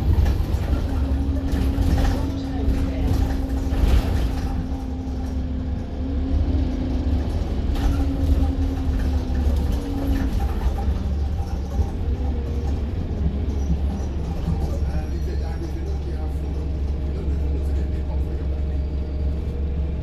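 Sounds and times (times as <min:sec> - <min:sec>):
bus engine and road rumble: 0:00.0 - 0:20.0.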